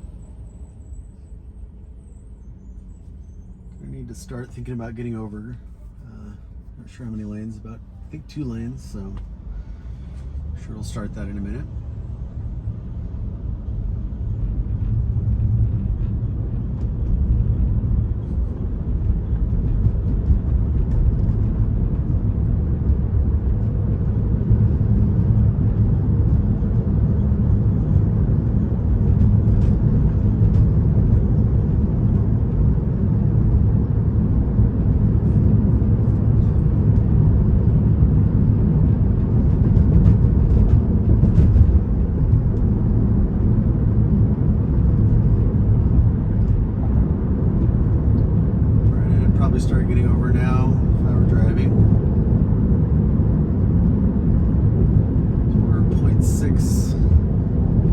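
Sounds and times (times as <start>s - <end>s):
road and tyre rumble in car: 0.0s - 57.9s.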